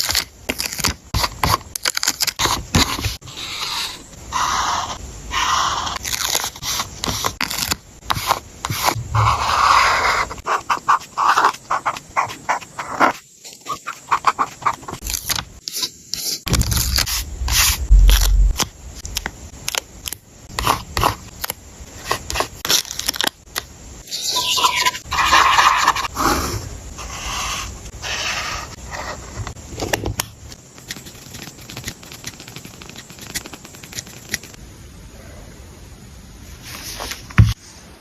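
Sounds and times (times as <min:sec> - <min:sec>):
paper rustling and scraping: 0:30.9 - 0:34.6, 0:36.6 - 0:37.6.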